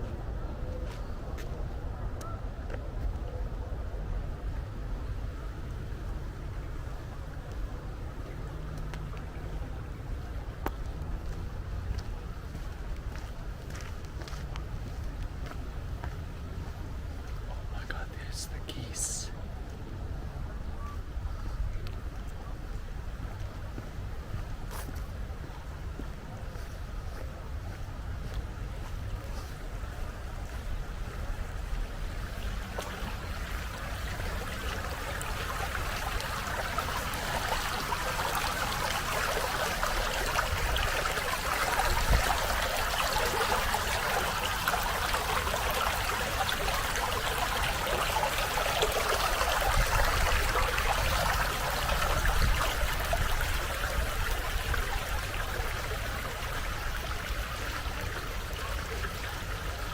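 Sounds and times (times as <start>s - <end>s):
stream water rushing: 30.6s - 59.9s.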